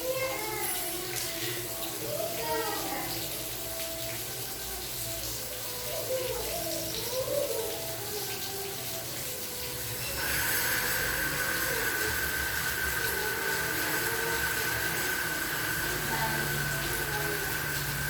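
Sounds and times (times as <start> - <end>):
steady rain hiss: 0.0 - 18.0.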